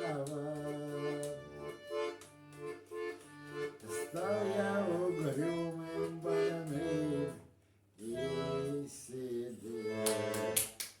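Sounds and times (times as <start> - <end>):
man singing: 0.0 - 1.7, 3.8 - 7.4, 8.0 - 10.6
button accordion folk melody: 0.0 - 10.8.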